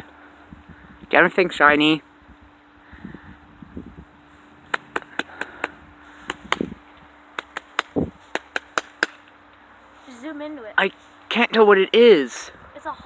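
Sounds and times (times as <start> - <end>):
faint outdoor background: 0.0 - 13.0
sharp clicks: 4.7 - 6.7, 7.4 - 9.4.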